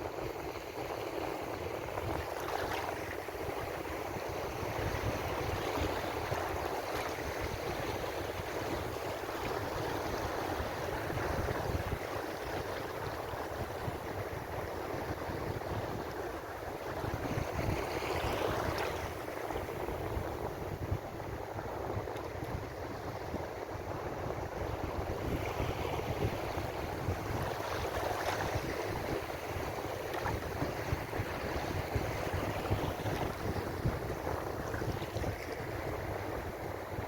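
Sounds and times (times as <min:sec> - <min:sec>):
ocean waves surf: 0:16.2 - 0:37.0.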